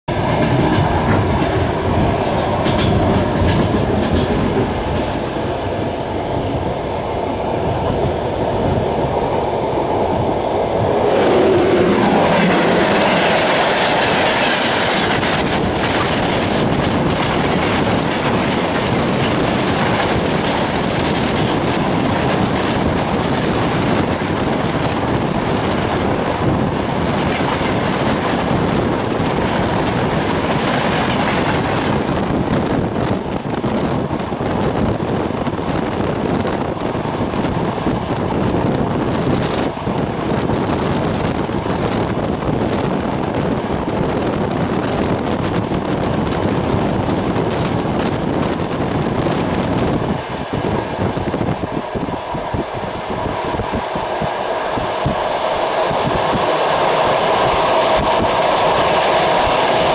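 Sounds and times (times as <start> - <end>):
freight train passing: 0.1 - 59.9
train wheels clattering over rail joints: 0.2 - 5.6, 11.6 - 50.2.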